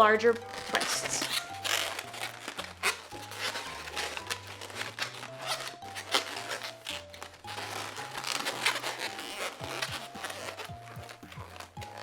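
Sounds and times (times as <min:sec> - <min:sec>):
balloons rubbing and squeaking: 0:00.0 - 0:12.0
background music with bass line: 0:07.6 - 0:12.0.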